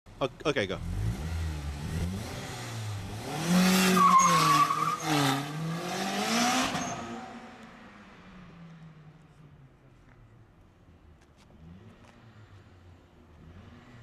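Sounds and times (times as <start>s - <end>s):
car engine accelerating hard: 0.8s - 8.2s
high squeal: 3.9s - 5.3s.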